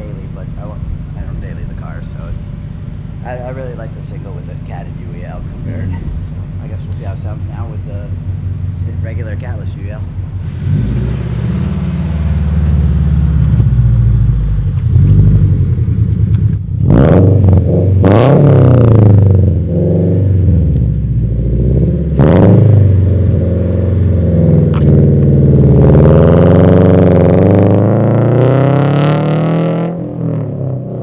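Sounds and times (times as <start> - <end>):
car engine revving: 10.4 - 31.0.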